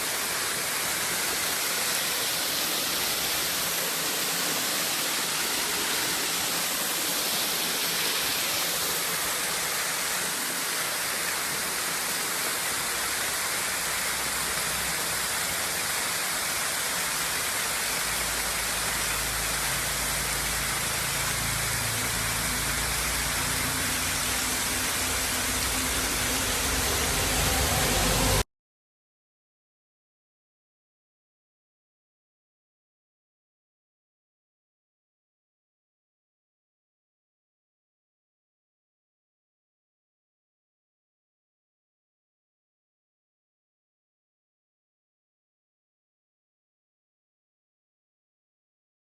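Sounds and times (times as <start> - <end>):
flowing water rushing: 0.0 - 28.4.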